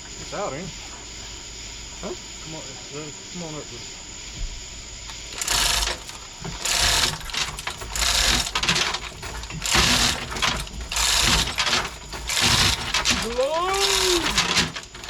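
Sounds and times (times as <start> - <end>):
hoist mechanical noise: 5.1 - 15.0.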